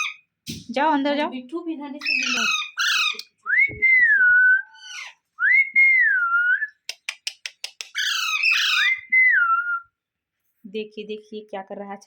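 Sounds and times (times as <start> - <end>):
parrot harsh chatter: 2.0 - 3.4, 4.8 - 5.2, 7.8 - 9.0
parrot whistling: 2.1 - 6.7, 8.0 - 9.8.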